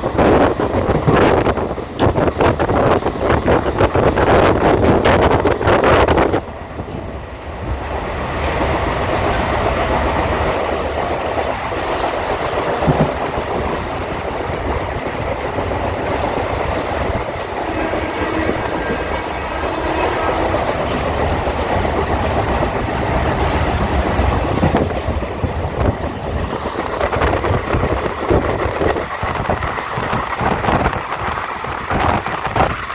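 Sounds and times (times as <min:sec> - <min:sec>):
train rumbling on rails: 0:00.0 - 0:32.9
wheels clattering over track: 0:11.7 - 0:14.8.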